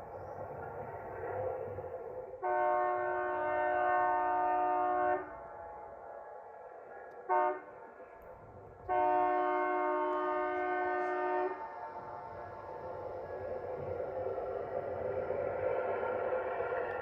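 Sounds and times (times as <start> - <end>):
train rumble: 0.0 - 17.0
locomotive air horn blasts: 2.4 - 6.0, 7.3 - 7.8, 8.8 - 12.3.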